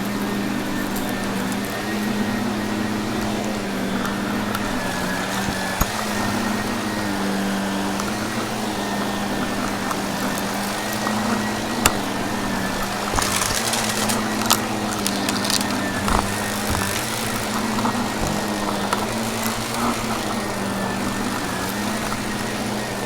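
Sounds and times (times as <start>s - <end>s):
vacuum cleaner running: 0.0s - 23.0s
debris clicking in vacuum: 12.7s - 22.6s.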